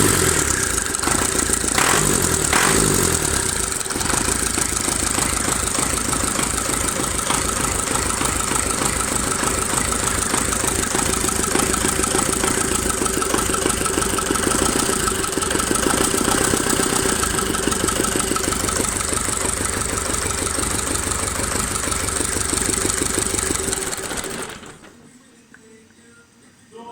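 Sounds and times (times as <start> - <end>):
diesel engine chugging: 0.0 - 24.9.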